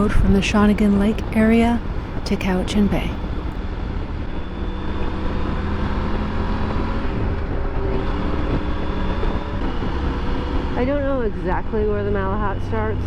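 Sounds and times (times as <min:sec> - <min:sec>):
wind and road noise: 0:03.2 - 0:13.0.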